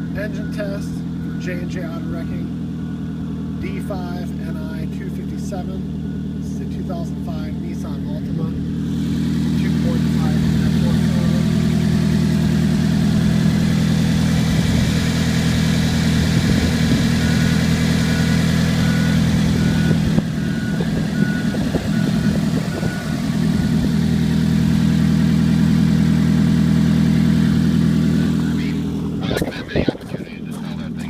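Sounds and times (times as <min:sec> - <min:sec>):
car engine idling: 0:00.0 - 0:31.0
faint beeps: 0:28.1 - 0:31.0.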